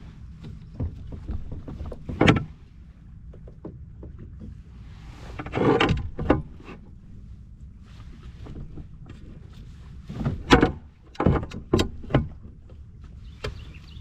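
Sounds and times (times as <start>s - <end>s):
steady low rumble: 0.0s - 14.0s
gear knocking in plastic kayak: 0.2s - 4.6s, 8.3s - 14.0s.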